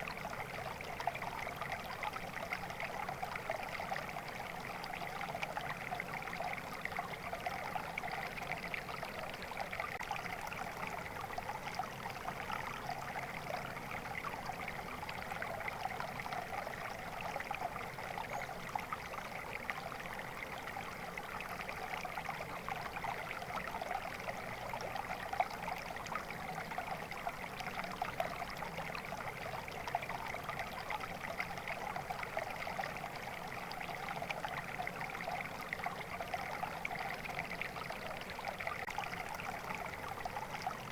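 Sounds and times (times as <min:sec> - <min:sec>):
shallow stream babbling: 0:00.0 - 0:40.9.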